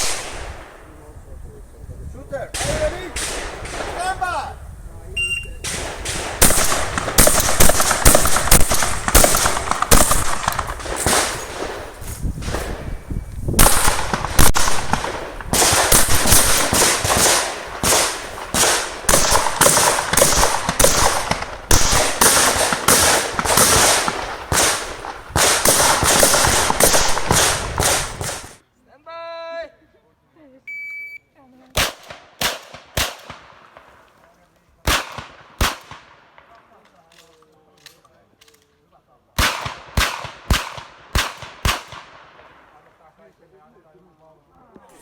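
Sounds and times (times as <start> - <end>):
shotgun shots: 0.0 - 0.9, 2.5 - 4.3, 5.5 - 28.6, 31.8 - 33.9, 34.8 - 36.6, 39.4 - 42.6.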